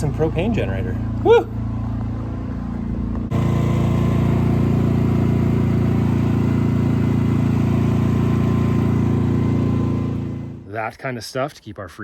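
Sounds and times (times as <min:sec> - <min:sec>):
generator engine running: 0:00.0 - 0:10.7.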